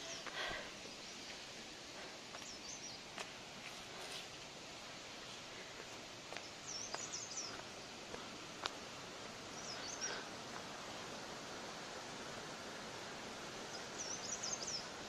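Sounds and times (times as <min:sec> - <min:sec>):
steady outdoor hiss: 0:00.0 - 0:15.0
small bird chirping: 0:06.4 - 0:07.6, 0:13.7 - 0:15.0.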